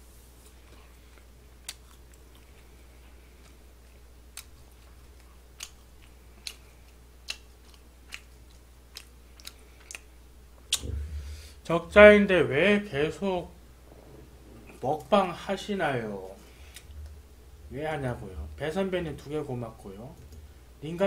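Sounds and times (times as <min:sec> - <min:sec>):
low steady hum: 0:00.0 - 0:21.0
person chewing food: 0:00.4 - 0:11.6.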